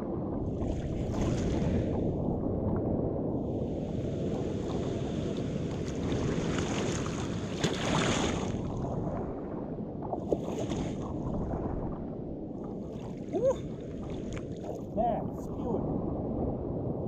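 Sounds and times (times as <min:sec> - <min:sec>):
water lapping against kayak: 0:00.0 - 0:17.0
wind buffeting microphone: 0:00.0 - 0:17.0
water splashes: 0:04.0 - 0:16.8.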